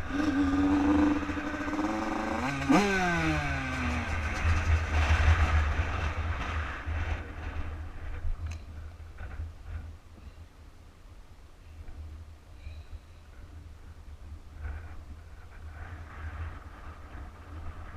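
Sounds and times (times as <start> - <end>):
two-stroke dirt bike engine: 0.0 - 8.2.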